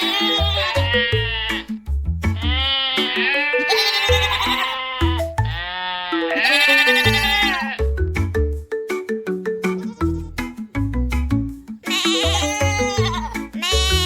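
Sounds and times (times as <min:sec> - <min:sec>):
goats bleating: 0:00.0 - 0:01.7, 0:02.4 - 0:07.8, 0:09.6 - 0:10.4, 0:11.8 - 0:14.0
soft instrumental music: 0:00.0 - 0:14.0.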